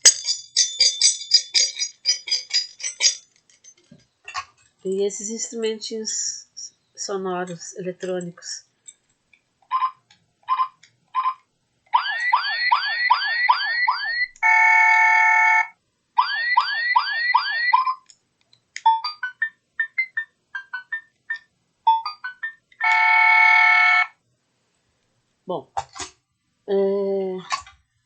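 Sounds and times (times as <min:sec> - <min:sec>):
electronic toy beeps: 0:09.7 - 0:11.4, 0:12.0 - 0:14.6, 0:15.4 - 0:18.0, 0:18.8 - 0:23.0.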